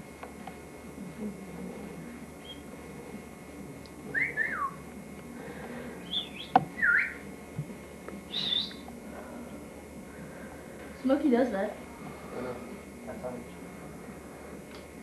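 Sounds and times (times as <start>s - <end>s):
bird whistled chirps: 2.4s - 2.7s, 4.1s - 4.8s, 6.0s - 7.2s, 8.3s - 8.8s.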